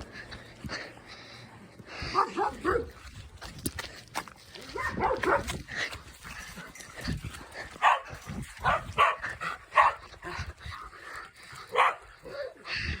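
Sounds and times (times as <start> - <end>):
dog barking: 2.1 - 2.9, 4.7 - 5.6, 7.8 - 10.0, 11.7 - 12.5.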